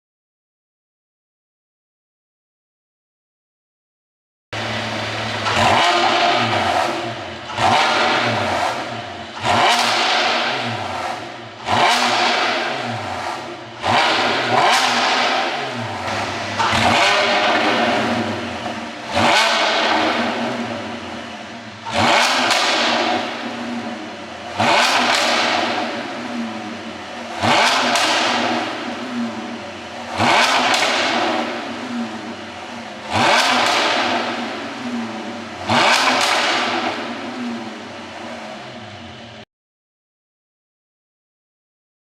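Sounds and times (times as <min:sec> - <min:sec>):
car engine revving: 0:04.6 - 0:39.4
exhaust pops and crackles: 0:15.9 - 0:20.4.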